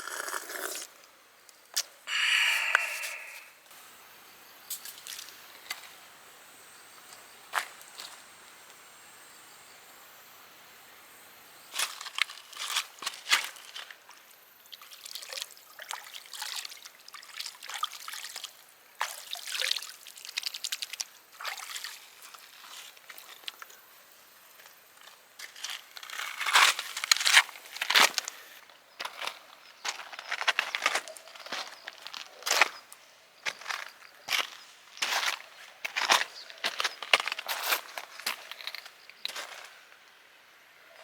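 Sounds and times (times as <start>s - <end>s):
water sloshing and trickling: 14.8s - 23.3s.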